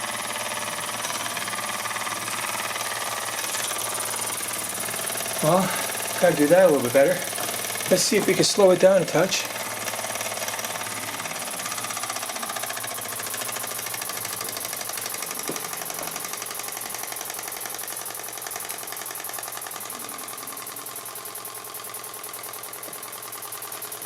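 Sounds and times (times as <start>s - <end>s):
steam engine exhaust beats: 0.0s - 24.0s
steam hiss: 5.4s - 9.6s.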